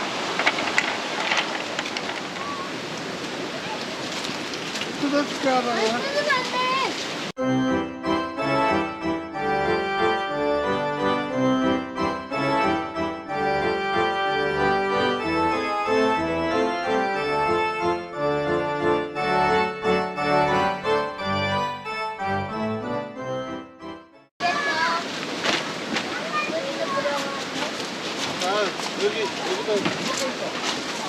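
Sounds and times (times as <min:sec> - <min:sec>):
organ-like keyboard tune: 0:07.4 - 0:24.3.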